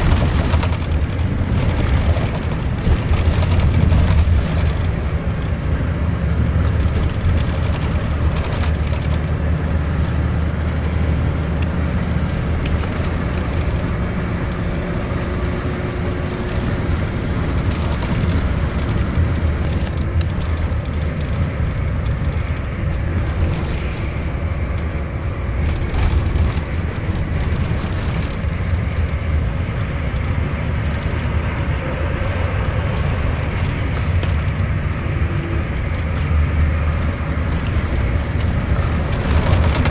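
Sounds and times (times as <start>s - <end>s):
bus engine drone: 0.0s - 39.9s
tyre and road noise: 0.0s - 39.9s.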